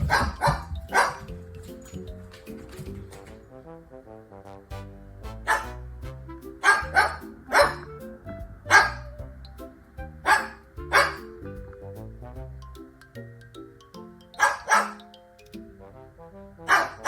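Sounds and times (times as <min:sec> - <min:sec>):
dog barking: 0:00.0 - 0:01.3, 0:05.4 - 0:05.8, 0:06.6 - 0:07.9, 0:08.7 - 0:09.1, 0:10.2 - 0:11.3, 0:14.4 - 0:15.0, 0:16.6 - 0:17.0
background music: 0:00.0 - 0:17.0.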